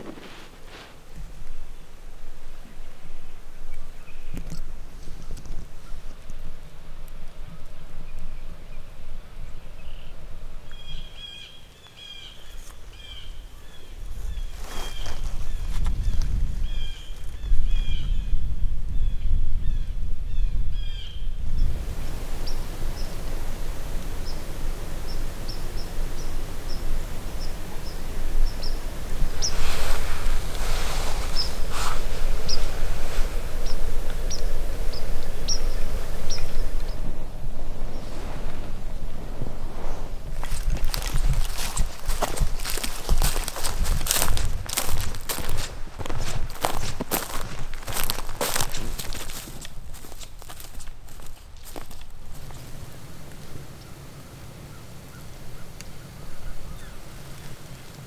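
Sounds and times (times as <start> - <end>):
rustling: 0.0 - 1.8, 12.2 - 17.4, 21.6 - 54.2
songbird chirping: 7.4 - 18.4, 19.0 - 58.0
wind rumble on microphone: 12.9 - 58.0.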